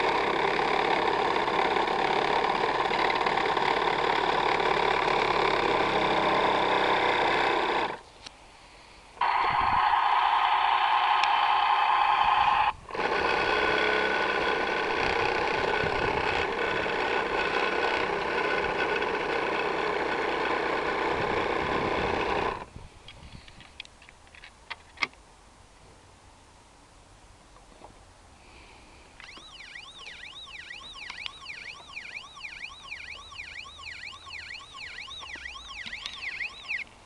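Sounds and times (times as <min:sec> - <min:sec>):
toy electronic sound effects: 0:09.2 - 0:12.8, 0:29.2 - 0:36.9.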